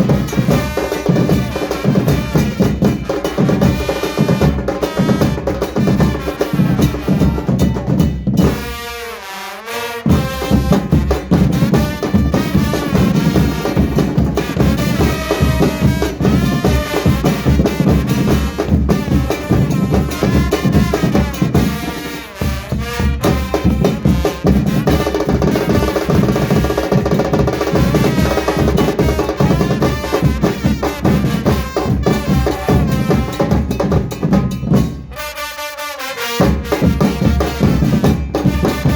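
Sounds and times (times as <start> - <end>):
bass and snare drums beating: 0.0 - 9.0, 10.0 - 35.4, 36.2 - 38.9
melody over drums: 27.7 - 35.1.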